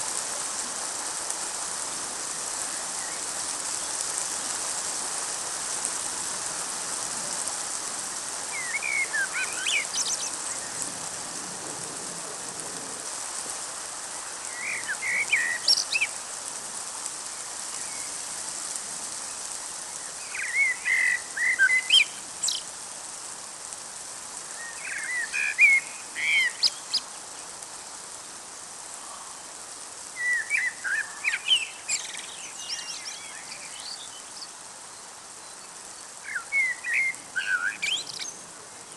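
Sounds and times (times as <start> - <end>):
rain hissing: 0.0 - 38.9
songbird warbling: 8.5 - 10.8, 14.5 - 16.2, 20.2 - 22.7, 24.5 - 27.2, 30.2 - 34.6, 35.6 - 38.4.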